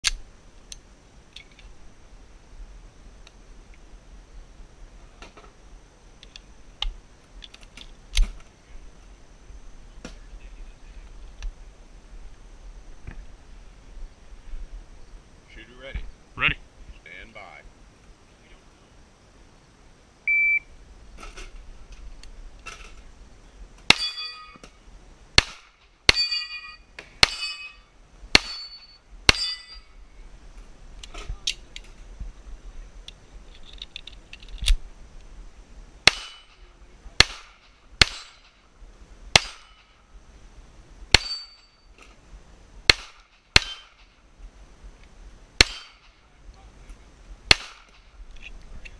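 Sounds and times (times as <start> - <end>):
shot timer beep: 20.3 - 20.7
steel targets clanging: 23.9 - 24.7, 26.1 - 29.9, 36.1 - 36.6, 37.2 - 38.6, 41.1 - 42.0, 43.6 - 44.1, 45.6 - 46.2
pistol shots: 25.4 - 26.4, 28.3 - 29.6, 36.0 - 36.6, 37.2 - 38.6, 39.3 - 39.9, 41.1 - 41.6, 42.9 - 44.1, 45.6 - 46.2, 47.5 - 48.1.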